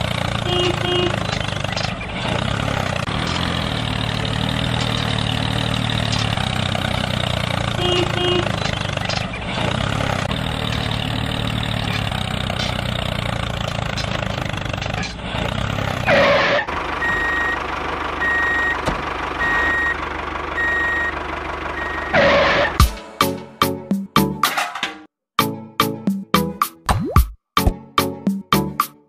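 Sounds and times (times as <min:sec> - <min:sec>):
tractor engine running: 0:00.0 - 0:25.0
reversing alarm beeping: 0:17.0 - 0:17.6, 0:18.2 - 0:18.8, 0:19.4 - 0:20.0, 0:20.6 - 0:22.6.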